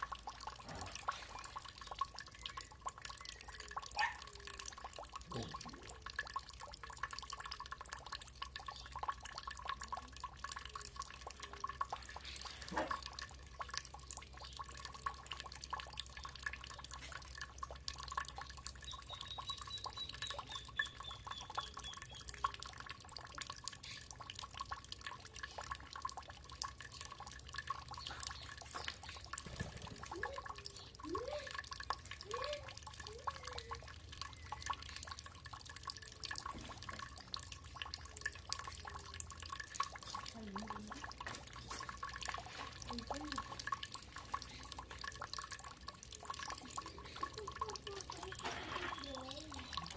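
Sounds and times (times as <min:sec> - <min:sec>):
water dripping: 0:00.0 - 0:49.9
bird trill: 0:18.8 - 0:22.5.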